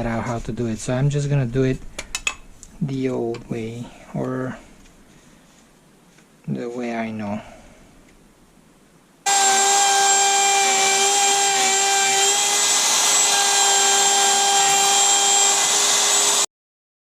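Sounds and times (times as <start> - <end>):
electric router whining: 9.3 - 16.5.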